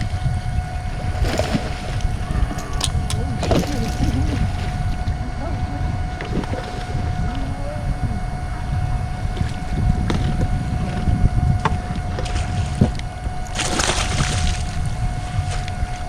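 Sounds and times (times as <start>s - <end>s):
wind on microphone: 0.0s - 16.0s
fish splashing in water: 0.7s - 5.2s, 11.6s - 15.7s.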